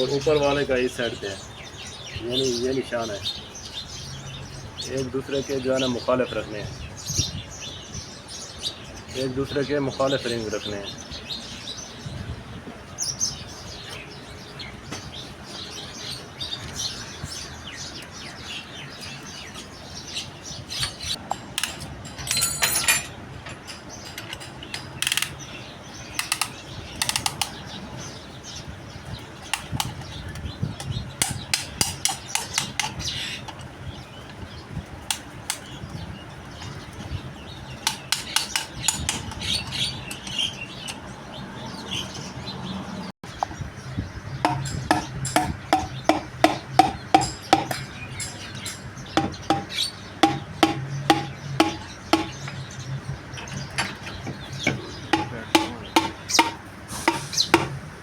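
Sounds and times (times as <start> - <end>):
metal parts clicking and clinking: 20.8 - 25.4, 47.1 - 49.0.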